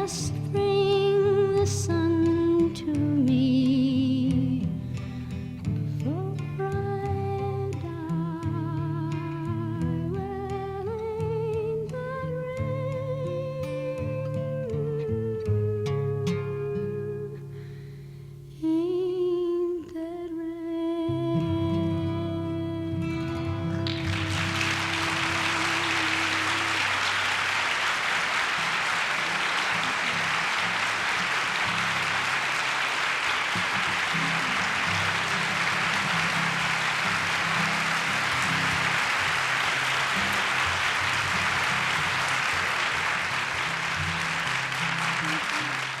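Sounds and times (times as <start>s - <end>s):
audience applauding: 23.7s - 46.0s.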